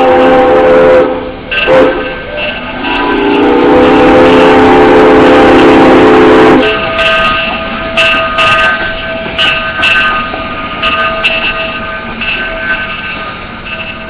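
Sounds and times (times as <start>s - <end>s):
steam locomotive whistle: 0.0s - 8.8s
train rolling: 0.0s - 14.0s
faint steady ringing: 6.6s - 14.0s.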